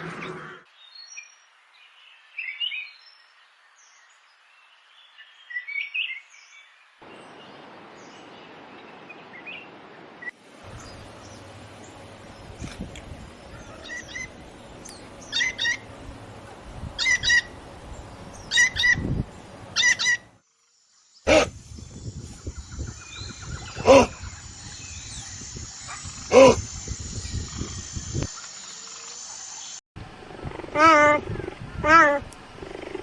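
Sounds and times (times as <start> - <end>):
loud animal calls: 21.3 - 21.6, 23.6 - 24.4, 25.9 - 26.7
birds calling: 21.3 - 28.6.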